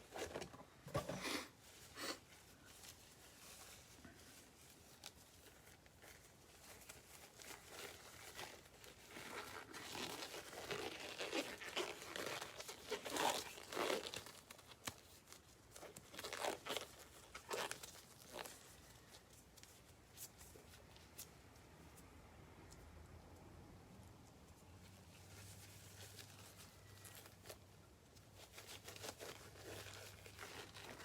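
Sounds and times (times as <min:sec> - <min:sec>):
plastic packaging crinkling and tearing: 0:04.3 - 0:19.8, 0:25.6 - 0:31.0.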